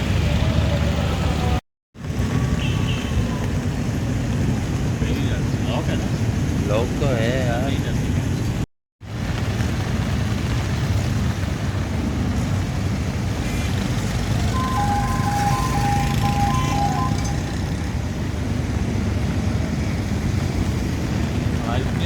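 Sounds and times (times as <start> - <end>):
road traffic: 0.0 - 22.0
vehicle horn short beeps: 14.5 - 17.9.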